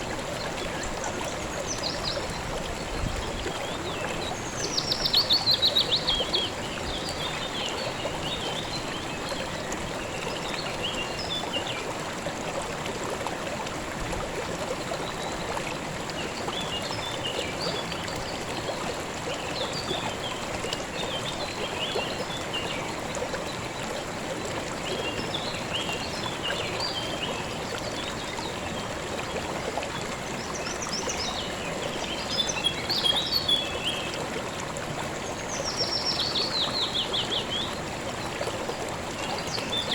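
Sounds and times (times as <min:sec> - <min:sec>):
river flowing: 0:00.0 - 0:39.9
small birds chirping: 0:30.6 - 0:34.2.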